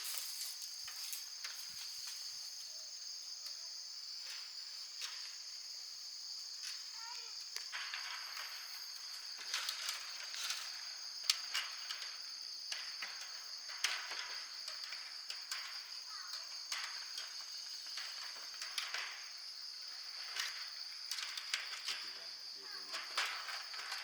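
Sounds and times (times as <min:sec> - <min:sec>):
high-pitched insect drone: 0:00.1 - 0:24.0
light clicks and rustles: 0:06.6 - 0:24.0.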